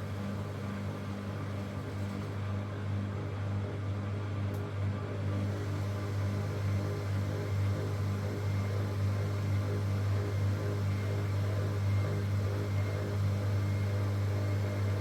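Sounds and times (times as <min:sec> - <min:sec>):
washing machine humming: 0:05.1 - 0:15.0.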